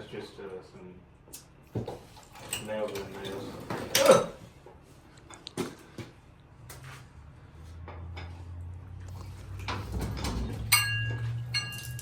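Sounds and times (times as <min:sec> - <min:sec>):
ringing metallic clang: 0:10.1 - 0:12.0.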